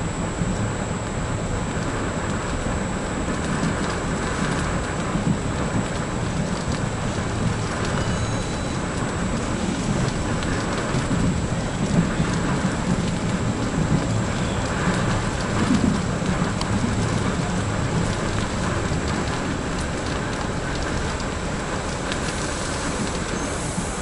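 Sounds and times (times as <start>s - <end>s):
train rumble and rush: 0.0s - 24.0s
thin high whine: 7.6s - 9.9s.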